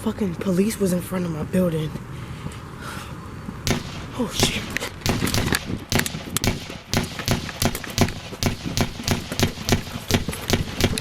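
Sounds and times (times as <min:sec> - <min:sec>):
rapid sharp thuds and cracks: 0:03.7 - 0:11.0.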